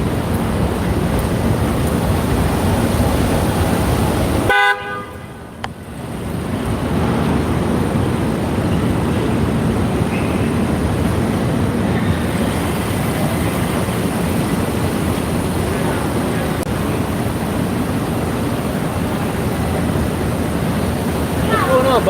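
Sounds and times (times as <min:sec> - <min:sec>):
wind buffeting microphone: 0:00.0 - 0:04.5
street traffic: 0:00.0 - 0:22.0
car horn toot: 0:04.5 - 0:05.5.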